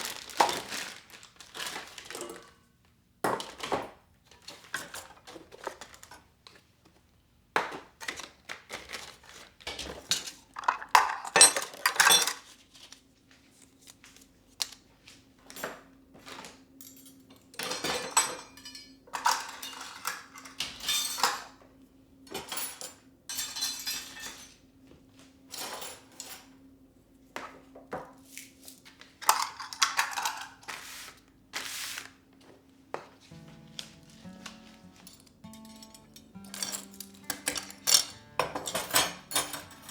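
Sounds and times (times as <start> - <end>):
dishes and utensils clinking: 16.8 - 21.4, 33.3 - 39.9.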